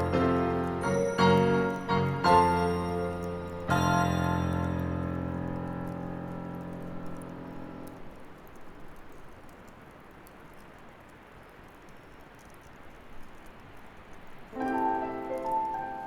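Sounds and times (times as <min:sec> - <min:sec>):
held piano chord: 0:00.0 - 0:08.2, 0:14.6 - 0:16.0
bonfire crackling: 0:00.0 - 0:16.0.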